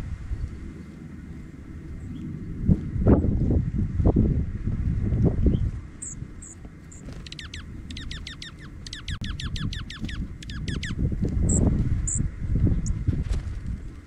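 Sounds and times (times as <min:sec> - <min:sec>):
steady low rumble: 0:00.0 - 0:14.0
songbird calling: 0:05.4 - 0:13.0.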